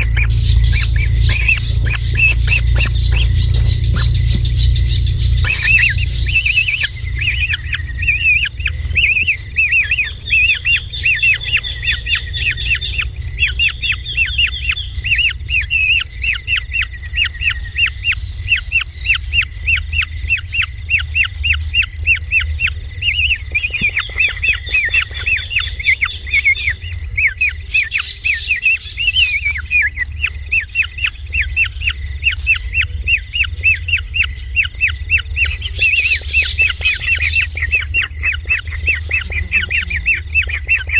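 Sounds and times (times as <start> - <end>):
low rumble: 0.0 - 29.7
high insect drone: 0.0 - 40.9
kingfisher chirping: 0.0 - 40.9.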